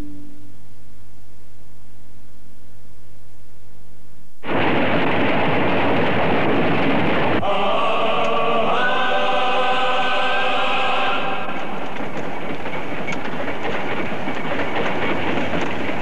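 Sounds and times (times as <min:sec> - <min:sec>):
train rushing rumble: 0:04.4 - 0:16.0
choir-like held tones: 0:07.4 - 0:12.0.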